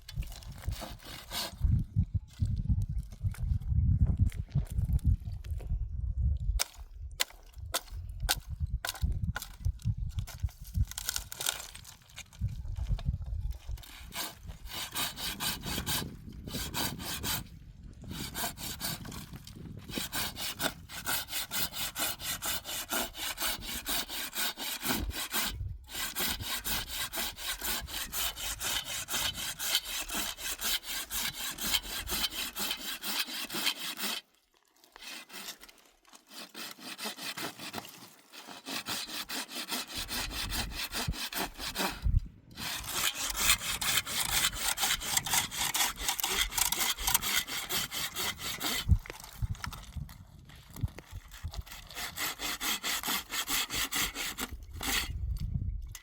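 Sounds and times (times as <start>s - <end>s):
hand saw cutting firewood: 0.2s - 1.7s, 13.6s - 49.8s, 50.8s - 55.4s.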